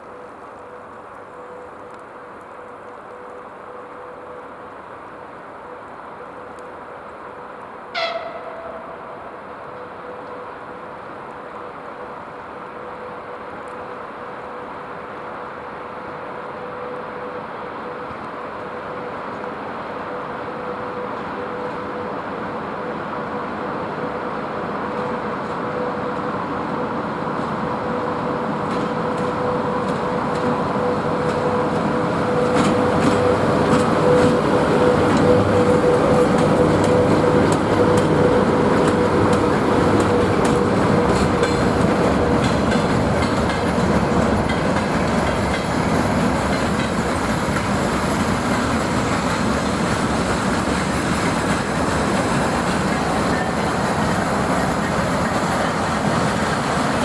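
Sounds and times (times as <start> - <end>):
freight train rumbling past: 3.5 - 57.0
wheels clicking over rail joints: 28.6 - 57.0.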